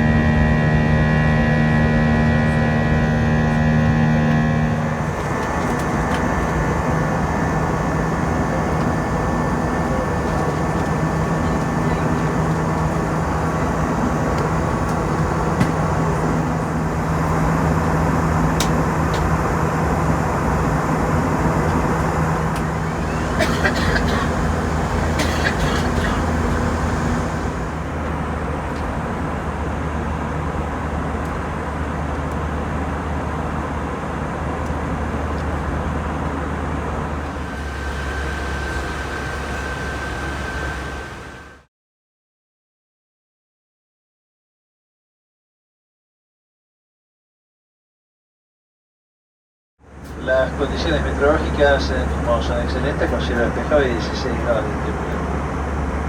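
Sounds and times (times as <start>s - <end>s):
low hum: 0.0s - 28.4s
jet engines rumbling: 0.0s - 41.7s, 50.0s - 56.0s.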